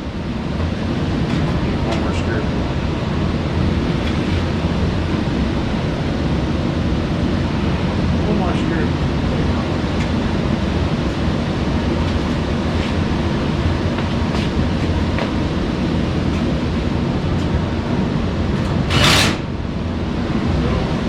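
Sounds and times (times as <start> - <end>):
low machinery hum: 0.0 - 21.0.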